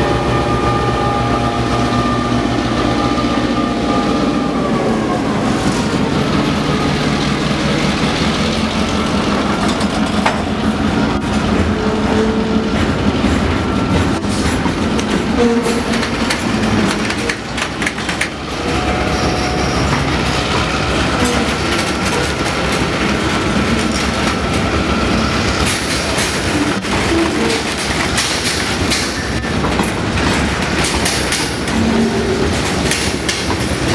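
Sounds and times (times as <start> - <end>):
diesel locomotive running: 0.0 - 33.9
wheels clicking over rail joints: 7.8 - 24.8, 25.5 - 33.9.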